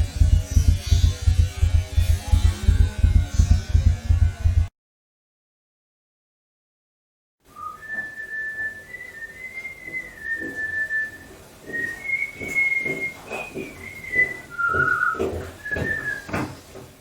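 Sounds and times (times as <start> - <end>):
dull knocks or thumps: 0.0 - 4.7, 11.6 - 17.0
person whistling a slow tune: 7.5 - 16.3.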